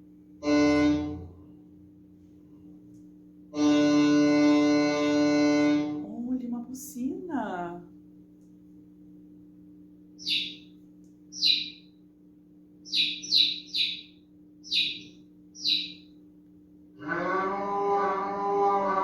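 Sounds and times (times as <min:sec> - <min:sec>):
faint steady hum: 0:00.0 - 0:19.0
high bird chirps: 0:10.2 - 0:11.9, 0:12.8 - 0:16.1
cow mooing: 0:17.0 - 0:19.0.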